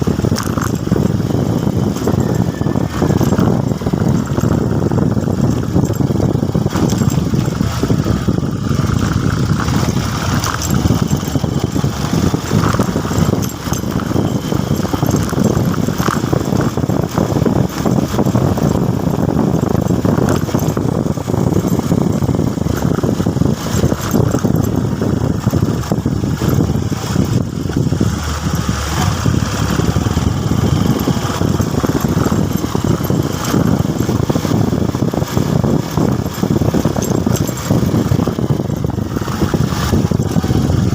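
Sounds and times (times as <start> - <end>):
motorcycle engine rumble: 0.0 - 40.9.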